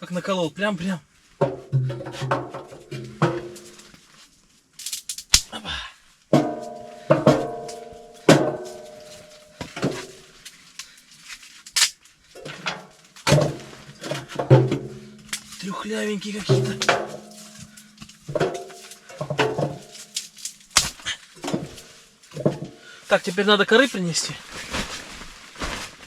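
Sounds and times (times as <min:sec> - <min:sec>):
axe splitting firewood: 0:06.4 - 0:10.9, 0:11.8 - 0:22.8.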